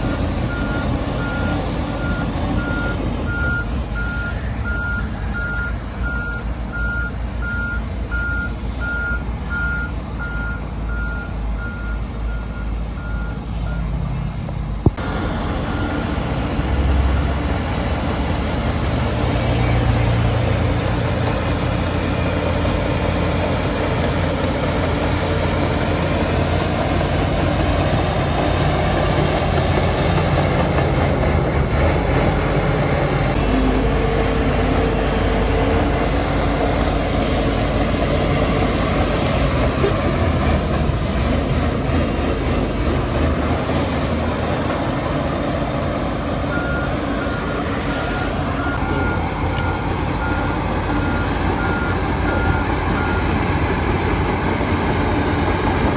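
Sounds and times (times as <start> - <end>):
reversing alarm beeps: 0.0 - 13.9, 46.5 - 53.4
diesel engine running: 0.0 - 55.9
heavy diesel engine under load: 0.0 - 55.9.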